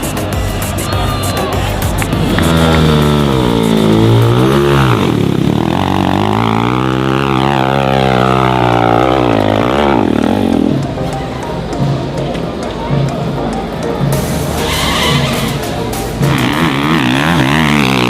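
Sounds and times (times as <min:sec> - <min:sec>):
dirt bike engine revving: 0:01.5 - 0:11.2, 0:14.1 - 0:18.0.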